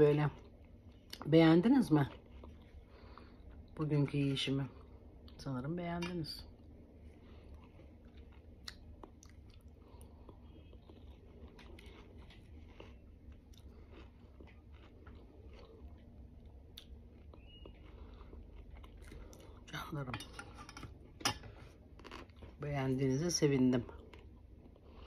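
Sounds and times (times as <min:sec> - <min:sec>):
person chewing wetly: 0:06.6 - 0:19.7, 0:24.0 - 0:25.0.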